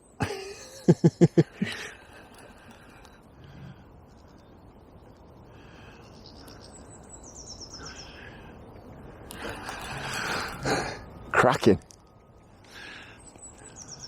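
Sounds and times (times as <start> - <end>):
rushing crackling noise: 8.6 - 13.7.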